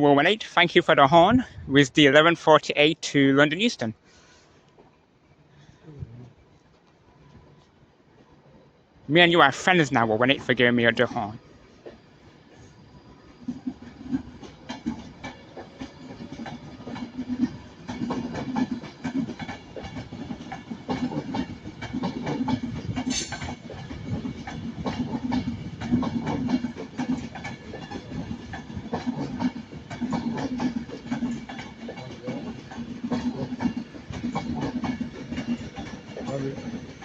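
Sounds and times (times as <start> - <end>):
train wheels clattering: 13.4 - 37.0.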